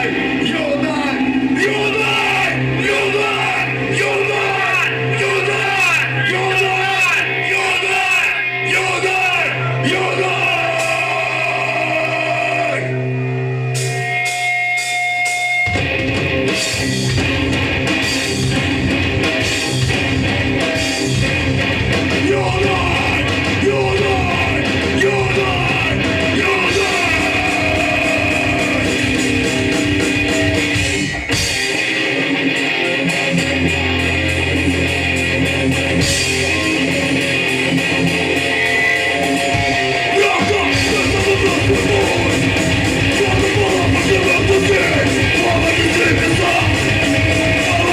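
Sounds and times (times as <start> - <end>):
distorted electric guitars: 0.0 - 47.9
punk band playing: 0.0 - 47.9
drum kit: 13.7 - 47.9.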